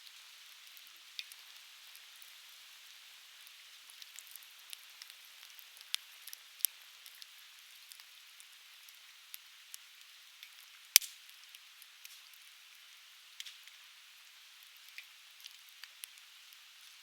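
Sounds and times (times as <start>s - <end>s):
firewood burning and crackling: 0.5s - 17.0s
sharp pops of fire: 10.4s - 11.4s.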